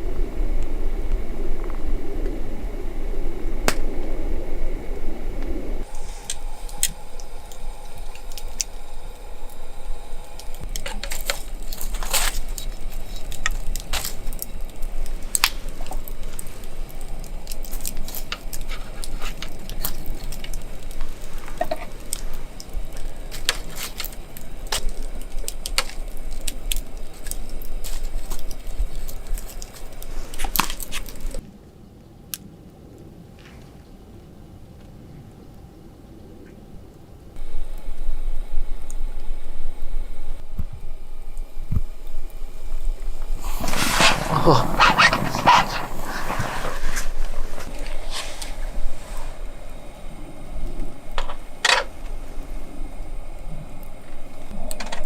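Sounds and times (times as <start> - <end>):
campfire crackling and popping: 3.6 - 4.3, 5.8 - 31.5, 40.5 - 54.8.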